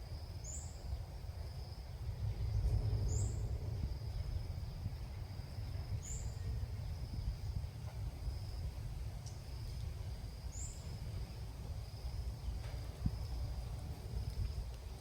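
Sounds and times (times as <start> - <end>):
faint insect whine: 0.0 - 15.0
low rumble: 2.0 - 10.2.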